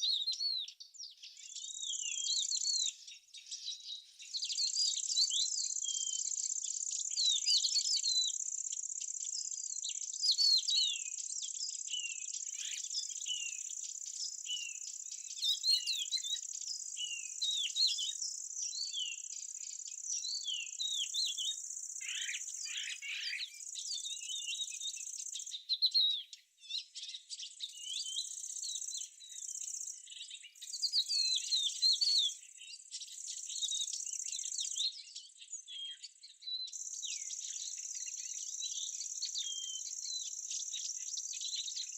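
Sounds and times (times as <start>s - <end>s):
small birds chirping: 0.0s - 41.9s
insects trilling: 21.4s - 23.8s.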